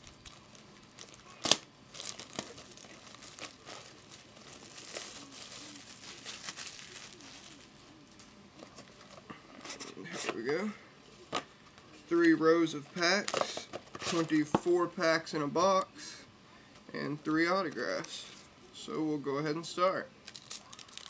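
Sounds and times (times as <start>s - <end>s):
plastic shrink-wrap crinkling and tearing: 0.0s - 8.3s, 20.2s - 21.0s.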